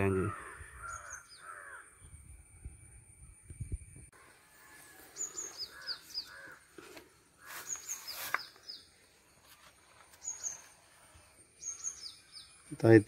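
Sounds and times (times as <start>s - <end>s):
crows cawing: 0.0s - 2.0s, 4.2s - 8.3s.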